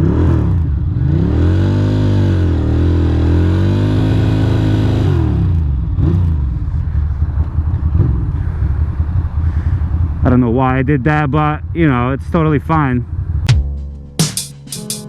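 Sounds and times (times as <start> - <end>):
motorcycle engine revving: 0.0 - 10.3.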